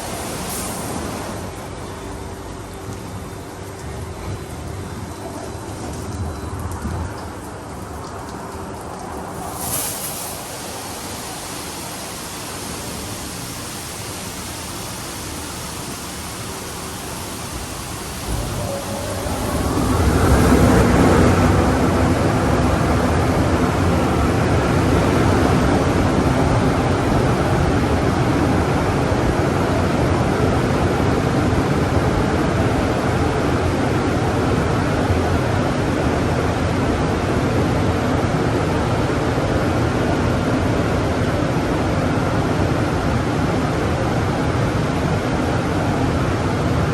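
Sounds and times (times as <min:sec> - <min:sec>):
water jets spraying on car: 0:00.0 - 0:36.6.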